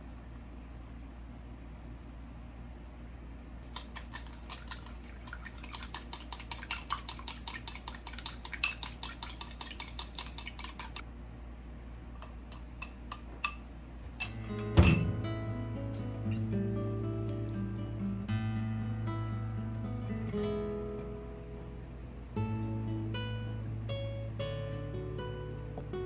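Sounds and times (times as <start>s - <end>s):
low steady hum: 0.0s - 26.0s
utensil tapping against cookware: 3.6s - 11.0s, 12.2s - 15.1s.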